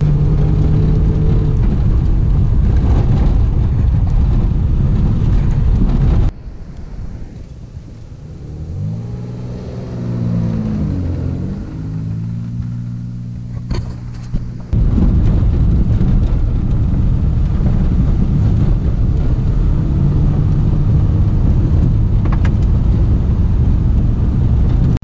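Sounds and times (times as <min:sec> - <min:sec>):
car engine revving: 0:00.0 - 0:25.0
car speeding past: 0:06.4 - 0:15.1.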